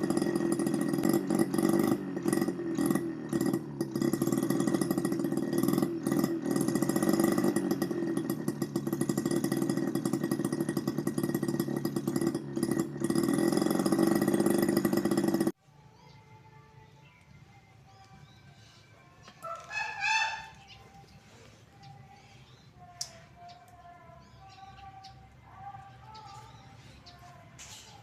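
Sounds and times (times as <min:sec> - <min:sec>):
small two-stroke engine buzzing: 0:00.0 - 0:15.6.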